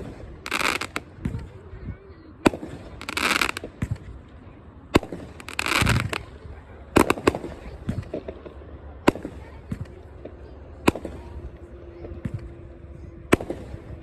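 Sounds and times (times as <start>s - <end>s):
fireworks rushing hissing bursts: 0.0s - 1.5s, 2.4s - 4.1s, 5.0s - 6.4s
fireworks cake bangs: 5.0s - 6.3s.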